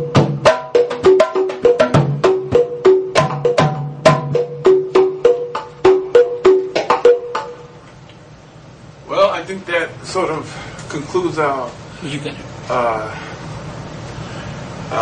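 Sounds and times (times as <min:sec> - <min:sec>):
bata drums playing a rhythm: 0:00.0 - 0:07.8.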